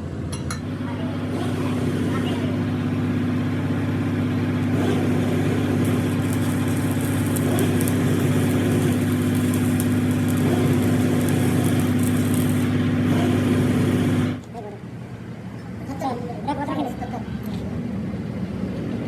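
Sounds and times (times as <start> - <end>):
crackling hiss: 5.8 - 12.8
machine humming: 5.8 - 12.9.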